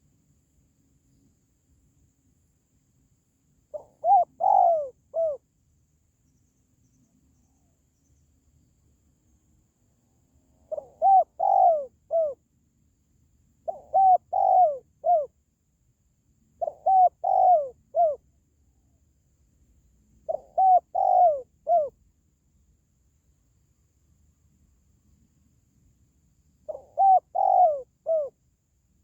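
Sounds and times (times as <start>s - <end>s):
dove cooing: 3.7s - 5.4s, 10.6s - 12.4s, 13.6s - 15.3s, 16.6s - 18.2s, 20.3s - 22.0s, 26.7s - 28.4s.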